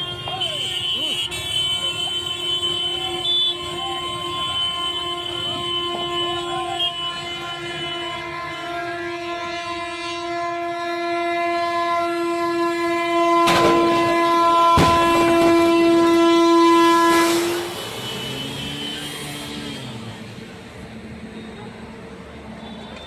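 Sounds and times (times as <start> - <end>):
train horn blast: 0.0 - 20.4
sharp bangs: 13.4 - 18.6.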